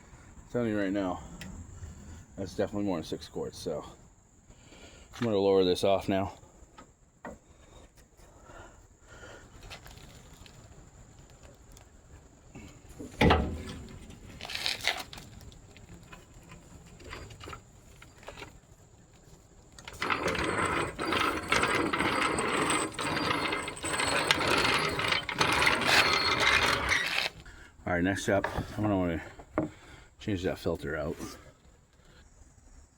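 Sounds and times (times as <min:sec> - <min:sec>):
metallic ratcheting and clatter: 0:19.8 - 0:27.4.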